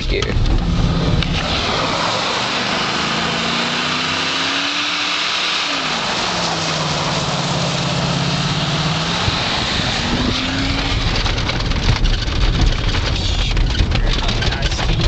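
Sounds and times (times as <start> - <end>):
heavy low rumble: 0.0 - 2.7, 6.6 - 15.0
truck engine running: 0.0 - 15.0
knocks and rattles: 10.1 - 15.0.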